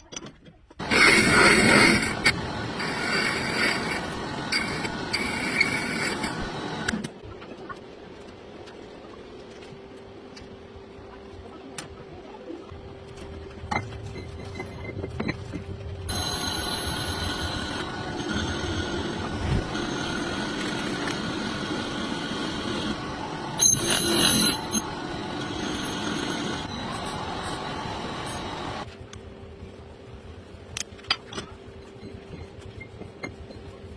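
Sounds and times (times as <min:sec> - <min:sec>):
metal lathe running: 0:00.8 - 0:06.9, 0:16.1 - 0:28.9.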